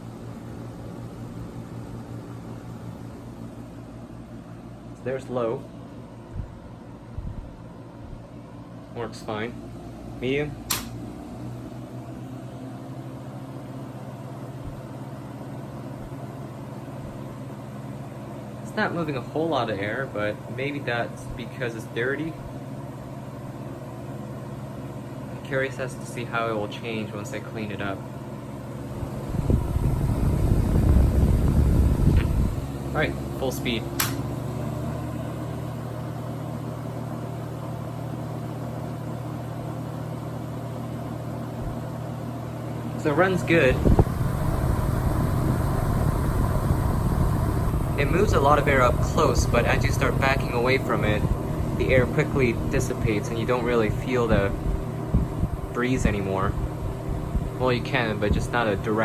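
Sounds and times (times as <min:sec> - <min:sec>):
box fan running: 0:00.0 - 0:59.0
fan switch click: 0:10.6 - 0:11.1, 0:30.9 - 0:32.6, 0:33.9 - 0:34.4.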